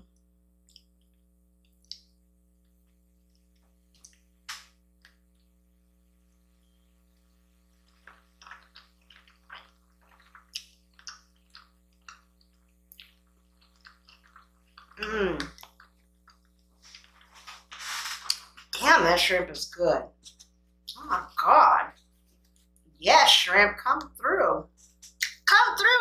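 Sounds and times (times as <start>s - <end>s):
faint electrical hum: 0.0s - 26.0s
wet chewing and smacking: 0.6s - 4.3s, 7.1s - 17.4s.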